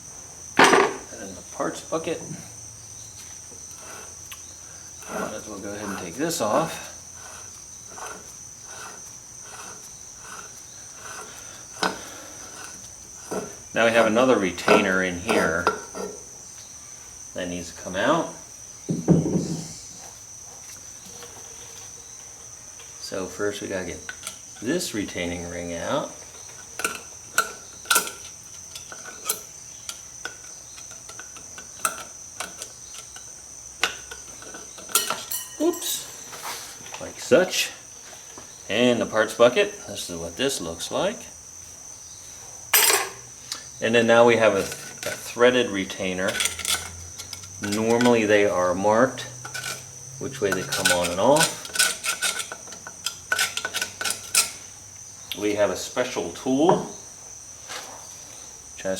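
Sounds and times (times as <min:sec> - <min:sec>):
high insect trill: 0:00.0 - 0:58.9.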